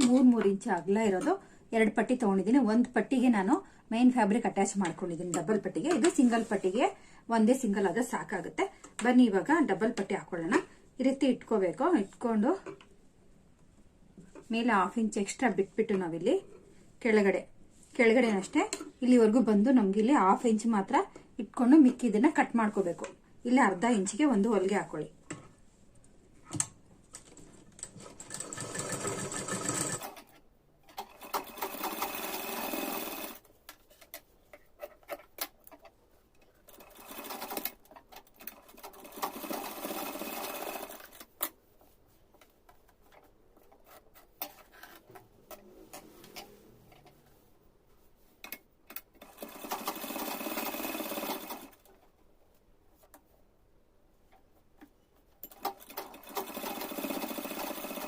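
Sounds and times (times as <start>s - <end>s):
sewing machine stitching: 27.8s - 30.3s, 30.9s - 33.4s, 36.7s - 41.3s, 49.2s - 51.8s, 55.4s - 58.0s.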